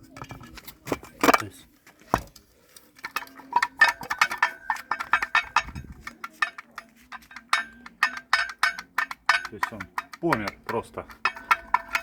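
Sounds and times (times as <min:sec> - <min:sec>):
metal parts clinking and rattling: 0:03.0 - 0:12.0.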